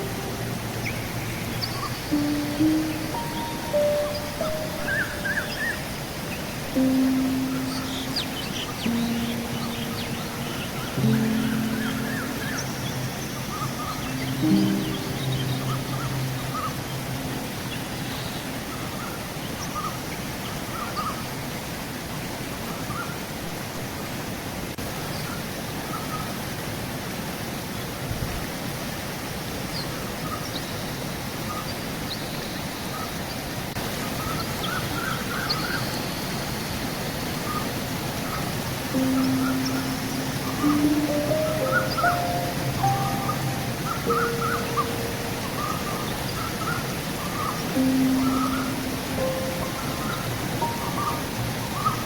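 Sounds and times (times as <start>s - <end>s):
bird chirps: 0.0s - 19.1s, 39.0s - 52.0s
river rushing: 0.0s - 30.5s, 32.8s - 52.0s.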